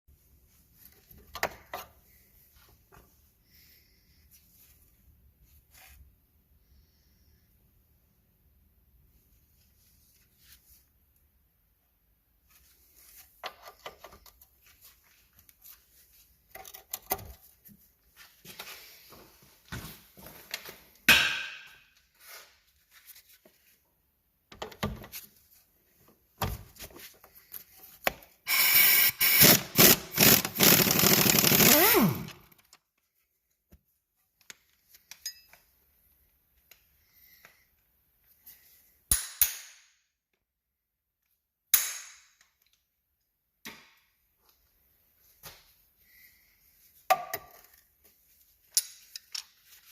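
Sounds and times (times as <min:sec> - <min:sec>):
power tool in rapid bursts: 0:28.5 - 0:32.5.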